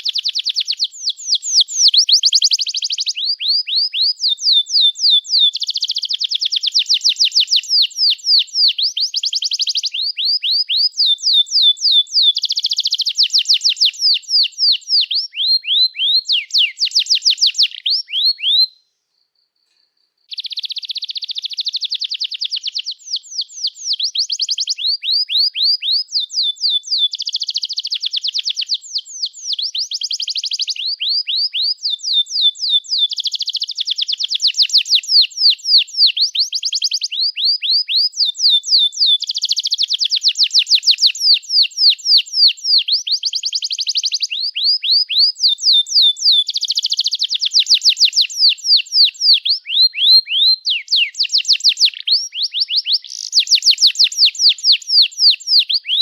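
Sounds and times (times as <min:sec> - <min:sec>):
canary singing trills: 0:00.0 - 0:18.8, 0:20.3 - 0:56.0.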